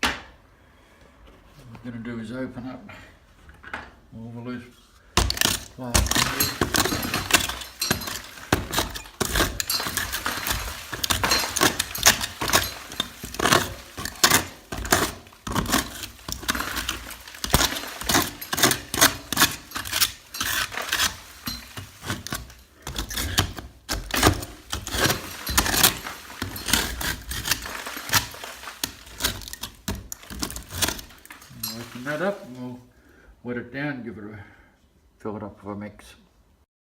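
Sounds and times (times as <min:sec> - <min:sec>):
hand tool chipping plaster: 0:05.2 - 0:32.8
crumbling plaster: 0:05.2 - 0:32.9.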